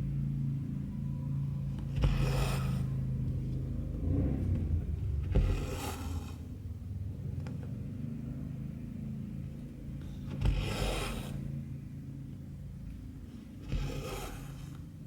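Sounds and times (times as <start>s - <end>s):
low rumble: 3.0s - 9.0s.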